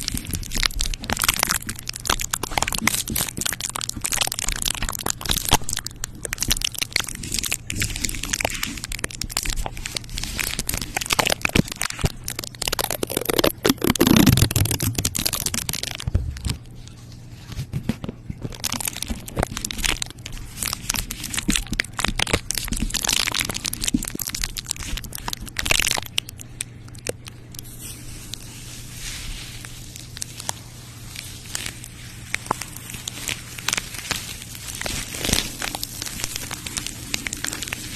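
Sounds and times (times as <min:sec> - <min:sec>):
crinkling and crunching: 0:00.0 - 0:37.9.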